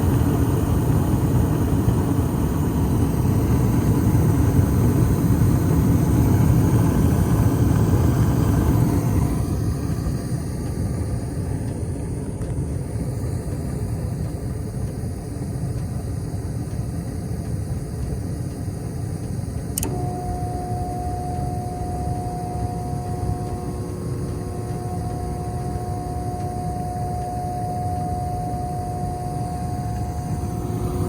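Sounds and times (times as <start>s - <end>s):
furnace low rumble: 0.0s - 31.0s
steady high whine: 0.0s - 31.0s
sharp click: 19.7s - 20.2s.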